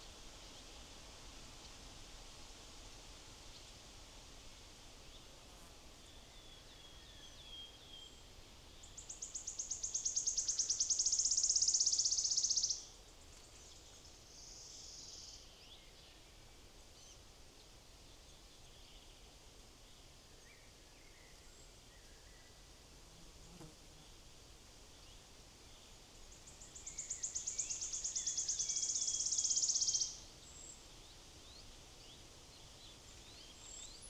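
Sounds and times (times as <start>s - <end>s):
songbird singing trill: 6.1s - 13.0s, 25.0s - 34.0s.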